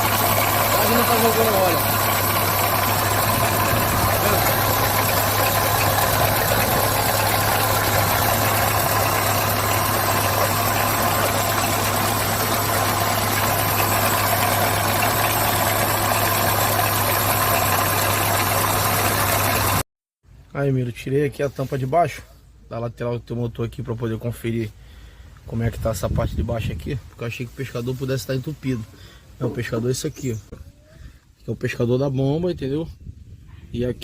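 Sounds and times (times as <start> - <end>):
car engine idling with clatter: 0.0 - 19.8.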